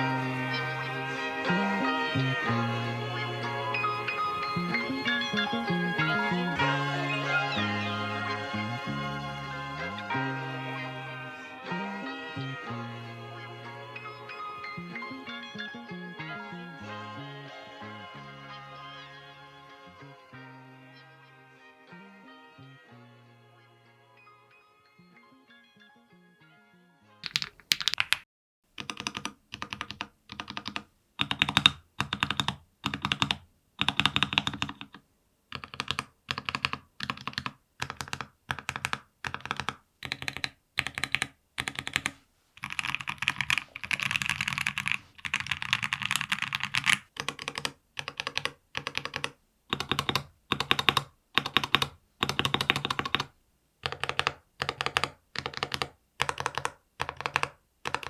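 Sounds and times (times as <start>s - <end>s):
keyboard keys clacking: 27.2s - 28.2s, 28.8s - 58.0s.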